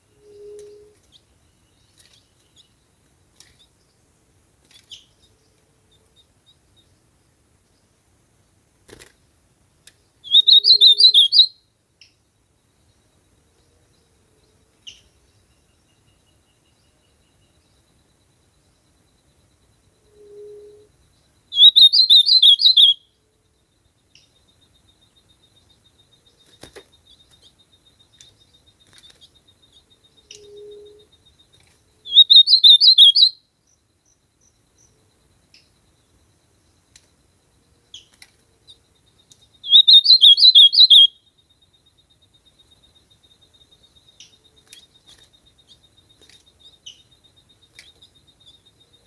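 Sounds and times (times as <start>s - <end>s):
bird singing warbled phrases: 10.1s - 12.2s, 21.4s - 23.2s, 25.3s - 35.0s, 37.9s - 41.3s.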